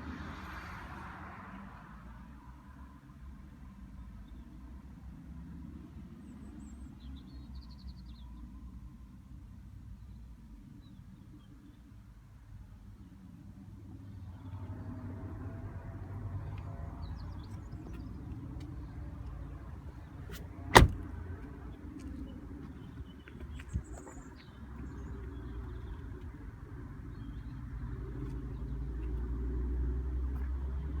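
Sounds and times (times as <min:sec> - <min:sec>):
car interior engine rumble: 0:17.1 - 0:21.5.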